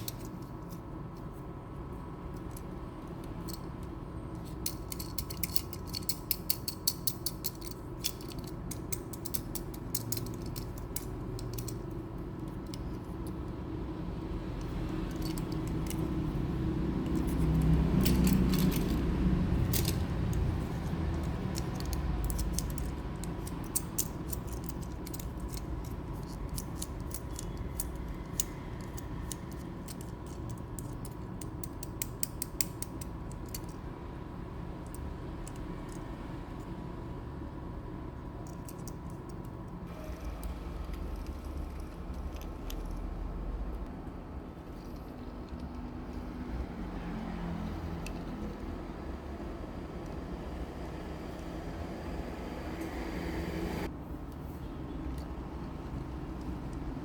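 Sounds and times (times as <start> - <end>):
toy truck parts clicking: 2.3 - 13.6, 14.2 - 33.8, 38.4 - 43.2, 47.3 - 48.9, 55.1 - 57.0.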